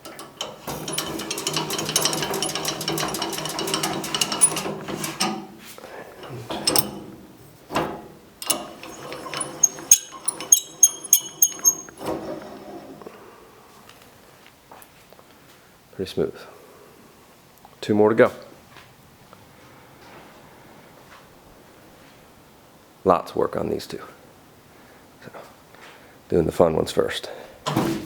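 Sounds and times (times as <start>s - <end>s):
sharp metallic clicks: 8.4s - 12.0s.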